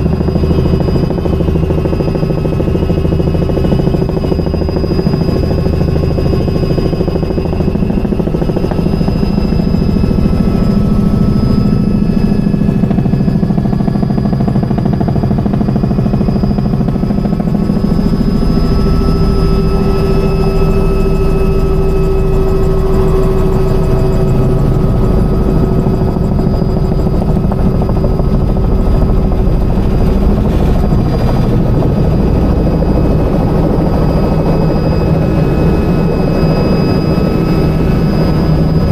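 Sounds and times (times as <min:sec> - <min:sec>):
helicopter rotor and engine: 0:00.0 - 0:38.9
high whine: 0:14.7 - 0:38.9.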